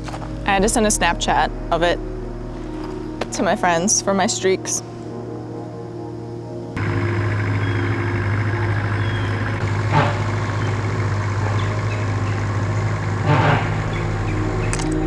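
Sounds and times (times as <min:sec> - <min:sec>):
loader engine humming: 0:00.0 - 0:15.0.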